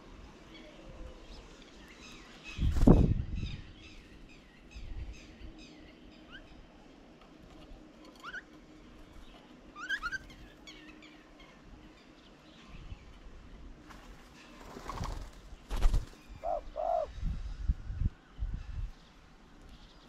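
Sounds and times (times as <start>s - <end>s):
birds chirping: 0.5s - 20.0s
bird cooing: 16.4s - 17.1s.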